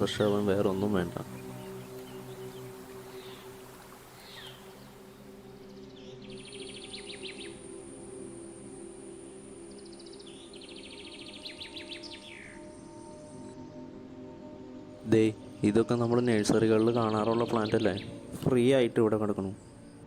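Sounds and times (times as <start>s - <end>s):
rapid bird trills: 0.0s - 7.6s
birds whistling: 0.0s - 7.7s, 9.6s - 13.5s
high insect whine: 0.0s - 14.8s
soft ambient music drone: 0.0s - 20.0s.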